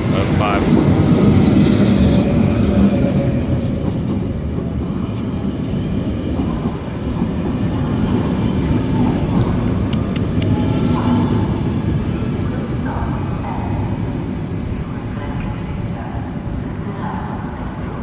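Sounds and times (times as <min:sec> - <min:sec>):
train wheels rumbling on rails: 0:00.0 - 0:17.9.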